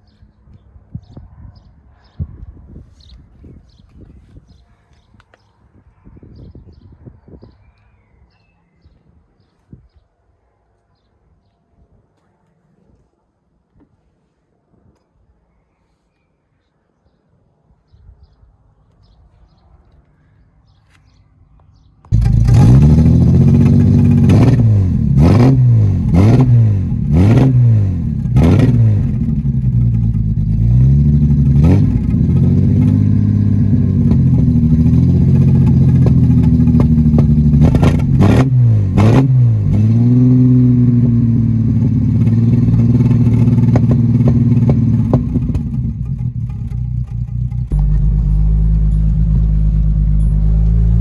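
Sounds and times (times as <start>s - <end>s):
car engine revving: 22.1s - 51.0s.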